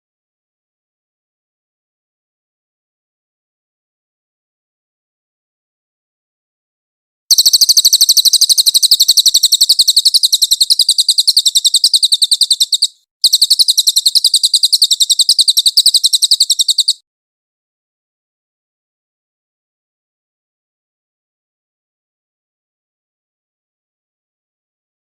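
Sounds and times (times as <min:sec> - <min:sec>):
songbird rapid trill: 0:07.3 - 0:17.0.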